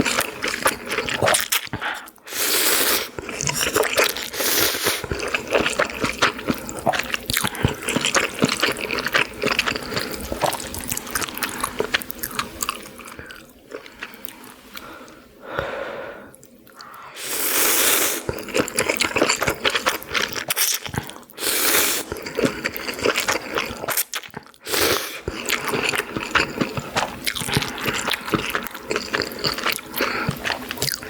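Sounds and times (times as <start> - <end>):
wet chewing and smacking: 5.0 - 14.8, 18.2 - 21.4, 22.0 - 24.6, 25.2 - 31.0.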